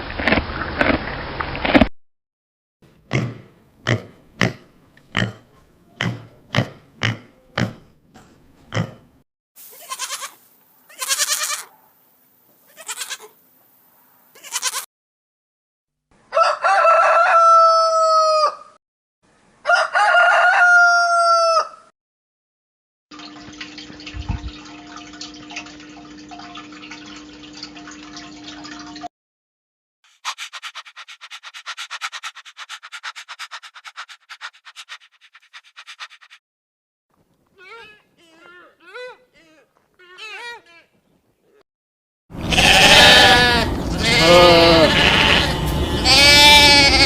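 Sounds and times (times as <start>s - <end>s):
rooster crowing: 16.3s - 18.8s, 19.6s - 21.9s.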